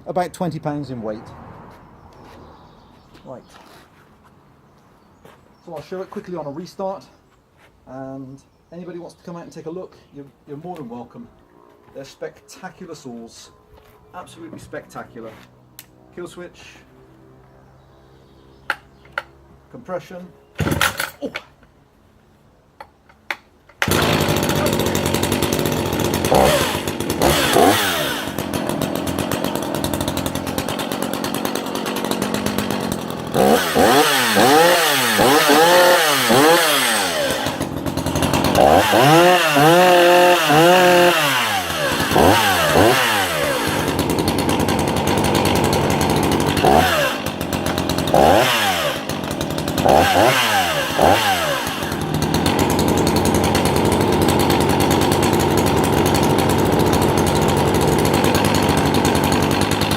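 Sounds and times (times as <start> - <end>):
chainsaw engine revving: 20.6 - 21.3, 23.8 - 59.9.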